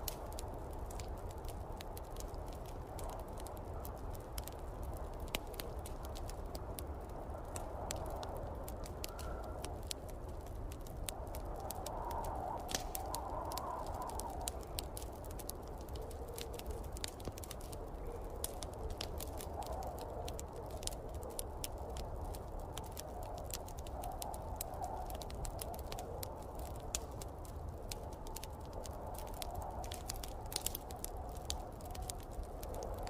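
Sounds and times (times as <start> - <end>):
snowstorm wind: 0.0 - 33.0
wood fire crackling: 0.0 - 33.0.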